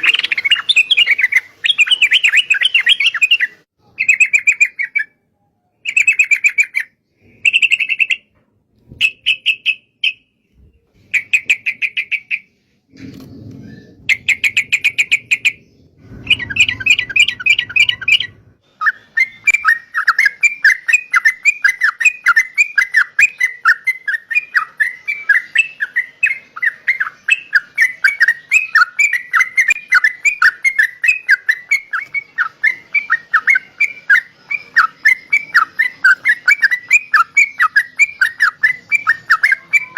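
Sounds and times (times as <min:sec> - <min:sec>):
bird chirping: 0:00.0 - 0:39.9
low rumble: 0:13.0 - 0:18.6.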